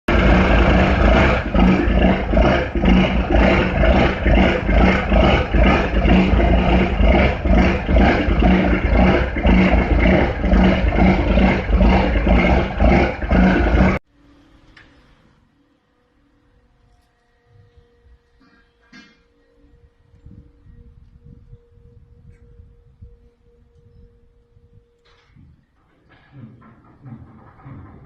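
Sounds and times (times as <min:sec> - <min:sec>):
heavy diesel engine running: 0:00.1 - 0:14.6, 0:26.3 - 0:28.0.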